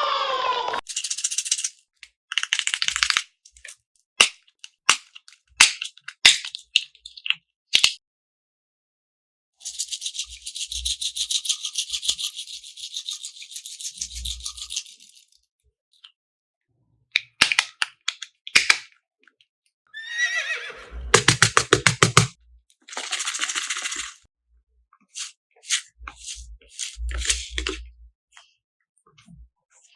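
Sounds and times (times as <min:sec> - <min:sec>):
falling squeal: 0:00.0 - 0:00.8.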